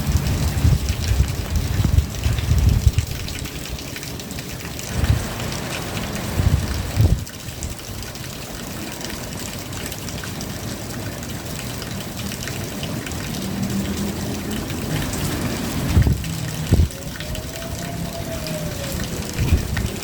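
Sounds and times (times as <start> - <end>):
rain falling: 0.0 - 20.0
water running: 12.0 - 20.0.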